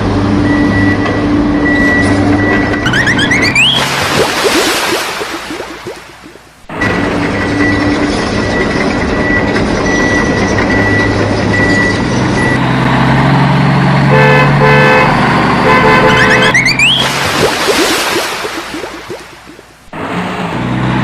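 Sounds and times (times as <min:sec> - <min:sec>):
horn tooting short blasts: 0:14.1 - 0:16.6.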